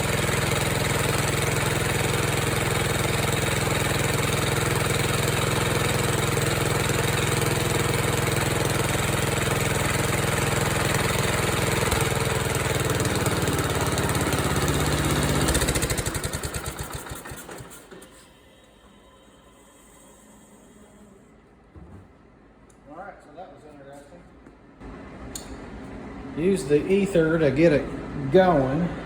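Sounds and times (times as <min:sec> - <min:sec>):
garden tractor engine running: 0:00.0 - 0:18.1.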